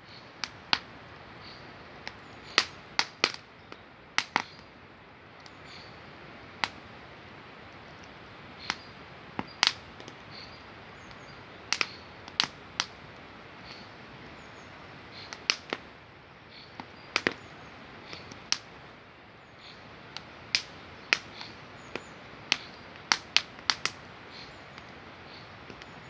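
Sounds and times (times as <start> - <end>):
campfire crackling and popping: 0.1 - 26.0.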